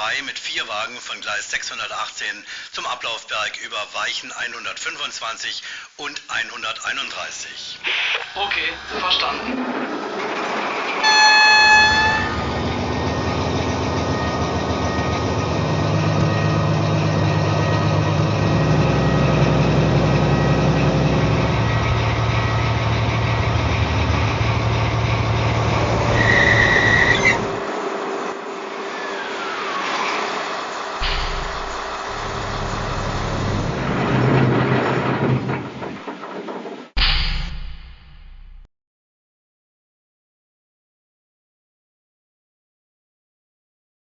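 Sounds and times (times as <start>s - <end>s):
short high tone: 11.0s - 12.8s
locomotive horn blast: 11.0s - 14.3s, 24.3s - 27.7s
diesel engine revving: 11.1s - 35.5s.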